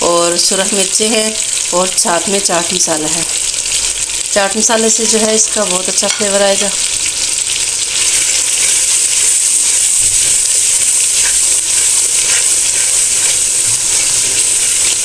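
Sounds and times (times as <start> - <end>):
masala sizzling in hot oil: 0.0 - 15.0
faint spatula scrapes: 8.0 - 15.0.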